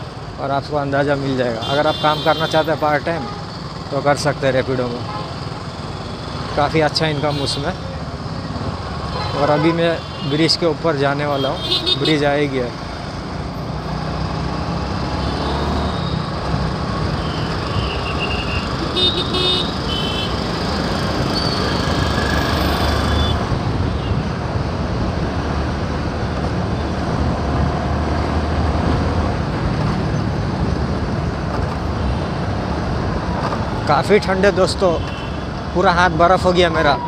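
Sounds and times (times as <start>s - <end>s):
road traffic noise: 0.0s - 37.0s
vehicle horns honking: 1.6s - 3.5s, 9.0s - 10.5s, 11.3s - 12.2s, 17.1s - 20.4s, 23.0s - 24.3s, 34.9s - 35.5s.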